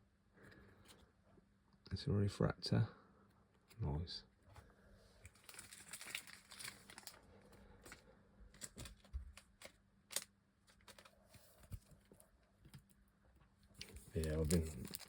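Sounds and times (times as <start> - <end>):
trading cards rustling: 5.2 - 8.0, 8.6 - 12.2, 13.7 - 15.0.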